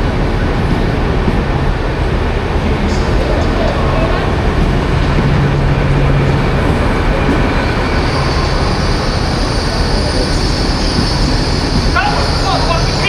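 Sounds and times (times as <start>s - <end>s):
train rumbling: 0.0s - 13.0s
high squeal: 0.1s - 13.0s.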